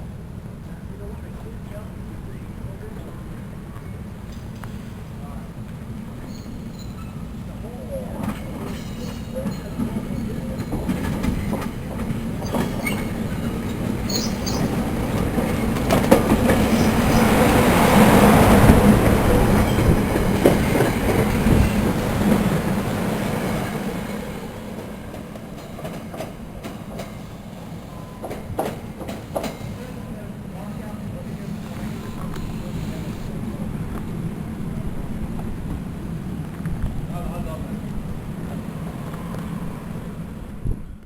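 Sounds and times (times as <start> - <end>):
train passing: 0.0 - 41.0
wheels clicking over rail joints: 8.2 - 22.7.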